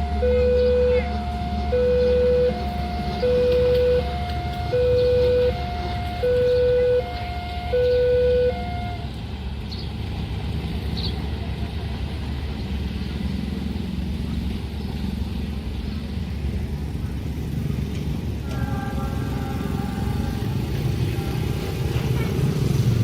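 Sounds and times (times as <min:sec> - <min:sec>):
multi-tone horn: 0:00.0 - 0:09.1
vehicles passing rumble: 0:00.0 - 0:23.0.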